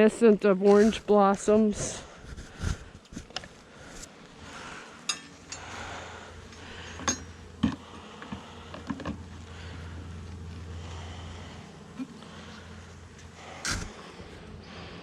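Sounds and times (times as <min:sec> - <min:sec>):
bees humming: 0:03.6 - 0:15.0
clicks and knocks of hive parts: 0:06.4 - 0:09.5.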